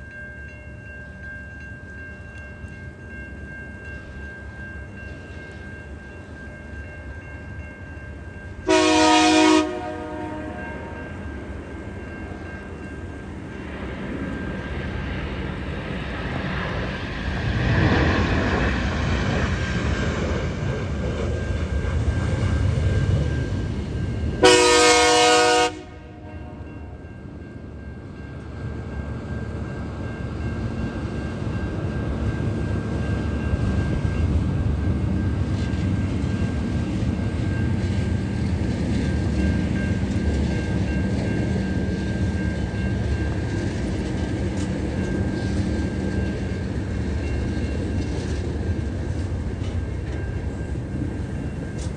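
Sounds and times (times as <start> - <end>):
train passing rumble: 0.0 - 51.9
locomotive horn blasts: 8.7 - 11.0, 24.4 - 26.6.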